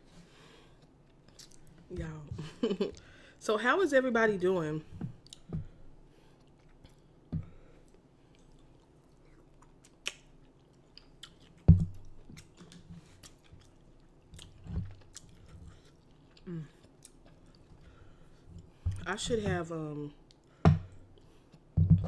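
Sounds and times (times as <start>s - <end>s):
person chewing: 0.8s - 1.7s, 5.2s - 5.5s, 6.2s - 7.2s, 7.8s - 19.0s.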